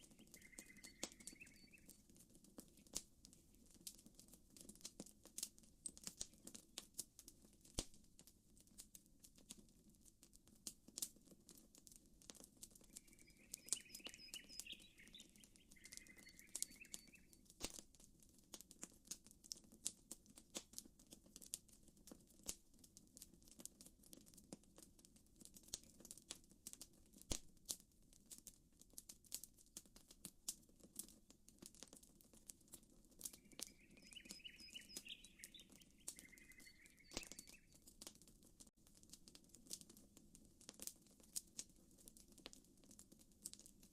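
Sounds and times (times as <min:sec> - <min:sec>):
campfire crackling: 0:00.0 - 0:43.9
bird calling: 0:00.2 - 0:01.9, 0:13.0 - 0:17.3, 0:33.3 - 0:37.8.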